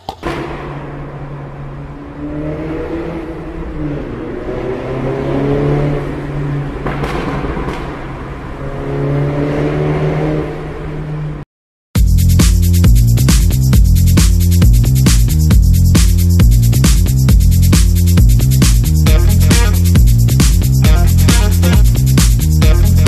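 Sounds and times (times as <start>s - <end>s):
car engine accelerating: 0.0s - 11.4s, 16.4s - 23.0s
sharp cracks: 6.8s - 8.2s.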